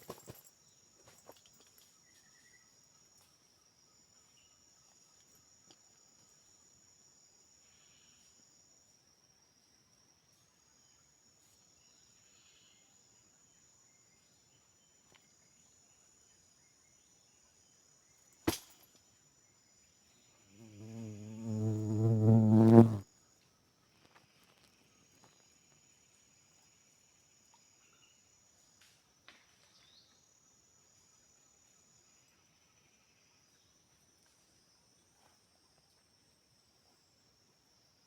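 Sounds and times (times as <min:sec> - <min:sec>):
insects buzzing: 0:15.5 - 0:23.1.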